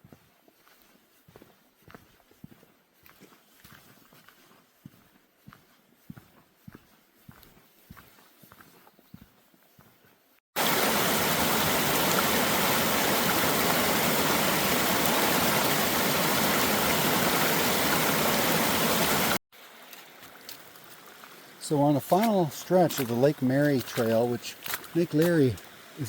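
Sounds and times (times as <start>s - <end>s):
waterfall rushing over rocks: 10.6s - 19.4s, 21.5s - 26.0s.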